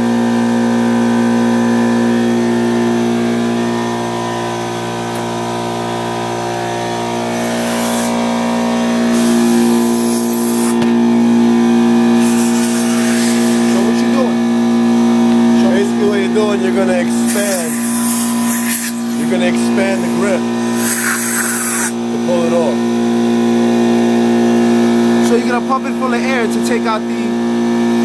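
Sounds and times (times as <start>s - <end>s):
air compressor humming: 0.0s - 28.0s
compressed air hissing blasts: 7.0s - 10.9s, 12.0s - 14.0s, 16.9s - 22.2s.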